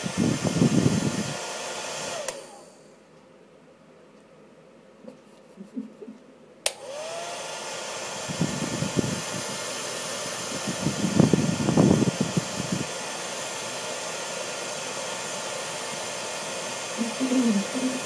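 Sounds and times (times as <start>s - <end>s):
hair dryer blowing: 0.0s - 2.9s, 6.6s - 18.0s
hair dryer switch click: 2.1s - 2.6s, 6.6s - 7.4s.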